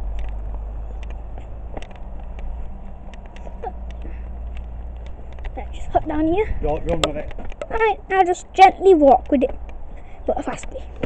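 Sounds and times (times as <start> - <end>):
low outdoor rumble: 0.0 - 11.0
light clicks: 0.1 - 5.6.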